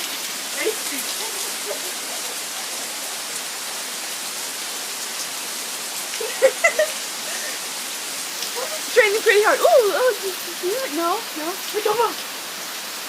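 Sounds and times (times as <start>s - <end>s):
heavy rain falling: 0.0s - 13.0s
person's voice: 0.6s - 2.4s, 8.5s - 12.2s.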